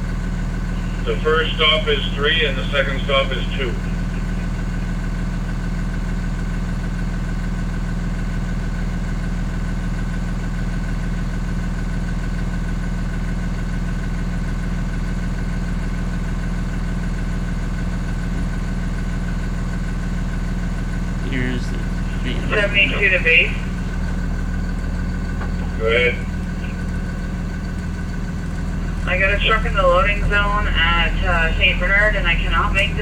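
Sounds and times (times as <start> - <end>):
bus engine running: 0.0 - 33.0
high whine: 20.9 - 33.0.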